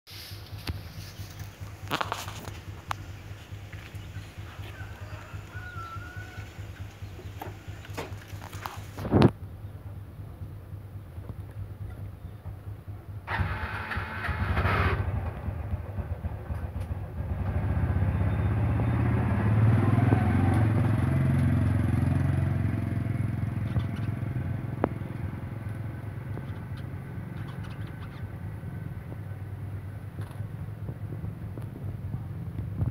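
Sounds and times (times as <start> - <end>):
vehicle engine passing: 11.6 - 32.9.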